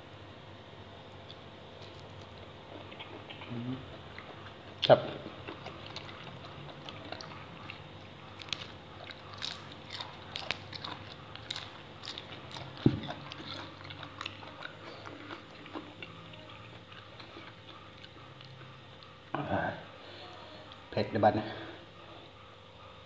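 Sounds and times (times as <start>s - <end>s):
chewing with crisp crunches: 1.2s - 19.4s.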